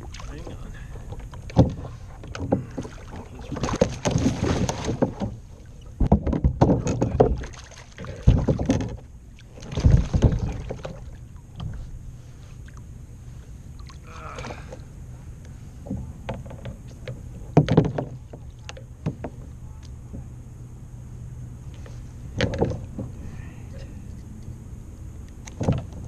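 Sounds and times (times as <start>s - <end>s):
knocks and bumps on kayak hull: 1.5s - 5.4s, 6.0s - 11.0s, 15.8s - 20.3s, 22.3s - 23.2s, 25.5s - 26.0s.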